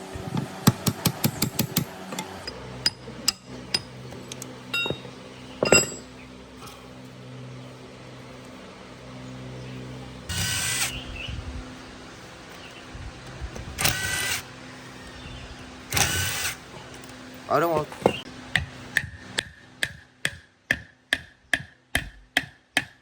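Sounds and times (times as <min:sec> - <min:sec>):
steady low hum: 0:00.0 - 0:21.4
ringing metal clank: 0:04.7 - 0:06.2.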